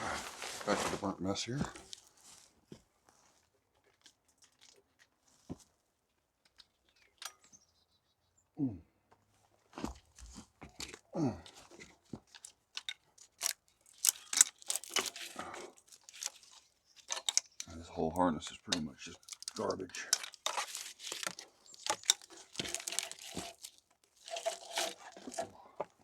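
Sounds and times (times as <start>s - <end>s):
brittle plastic crunching: 11.7s - 17.8s, 18.4s - 26.0s.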